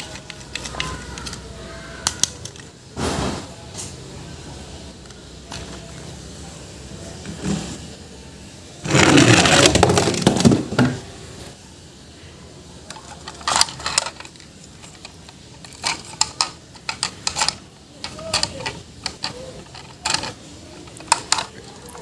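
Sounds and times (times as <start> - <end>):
objects rustling and clattering: 0.0 - 4.0, 8.8 - 11.0, 12.8 - 22.0.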